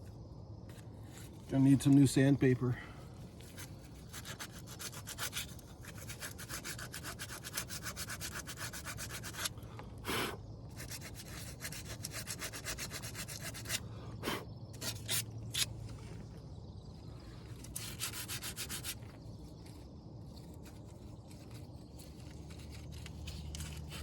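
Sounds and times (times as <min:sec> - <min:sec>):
sandpaper rubbing by hand: 0:03.5 - 0:09.5, 0:10.8 - 0:13.8, 0:17.8 - 0:19.0.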